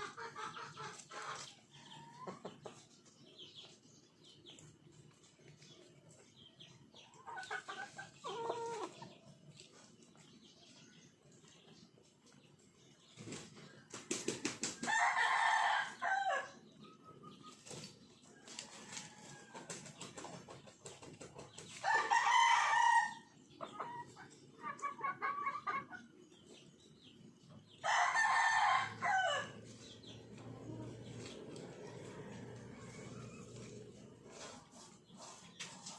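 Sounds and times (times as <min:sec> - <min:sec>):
rapid clucking calls: 0:00.0 - 0:02.9, 0:07.1 - 0:10.2, 0:23.6 - 0:26.1
rooster crowing: 0:14.9 - 0:16.5, 0:21.8 - 0:23.3, 0:27.8 - 0:29.6.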